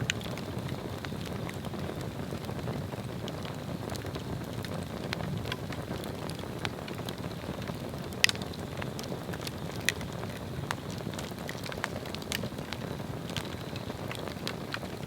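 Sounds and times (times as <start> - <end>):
crackles and pops of burning wood: 0.0 - 15.0
log fire burning: 0.0 - 15.0.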